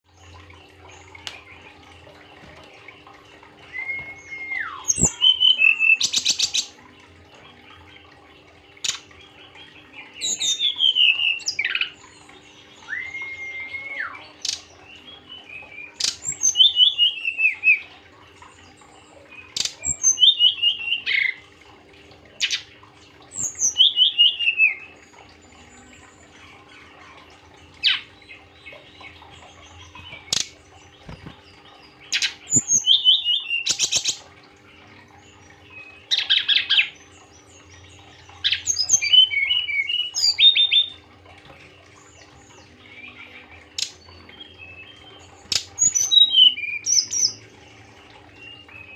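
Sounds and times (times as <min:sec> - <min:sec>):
faint steady hum: 0:00.1 - 0:48.9
bird singing whistled phrases: 0:03.6 - 0:06.6, 0:12.7 - 0:14.6, 0:45.8 - 0:47.4.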